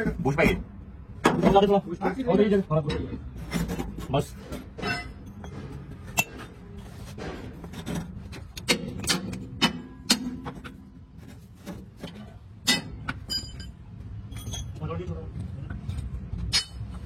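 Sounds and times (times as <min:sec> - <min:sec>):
metallic clinks and knocks: 0:12.1 - 0:15.0.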